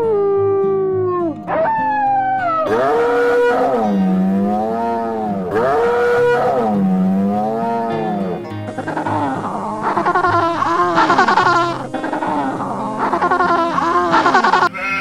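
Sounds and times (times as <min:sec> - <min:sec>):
background music: 0:00.0 - 0:15.0
long animal calls: 0:00.0 - 0:15.0.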